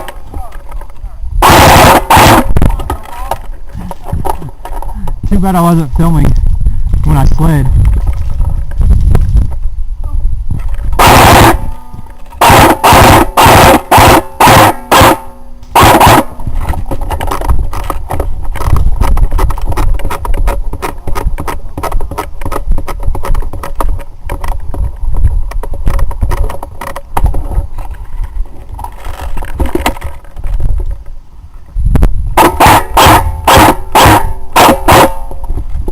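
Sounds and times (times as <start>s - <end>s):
airsoft gun firing bursts: 1.4s - 2.5s, 11.0s - 11.7s, 12.4s - 16.3s, 32.4s - 35.3s
low rumble with small clicks: 6.1s - 11.0s.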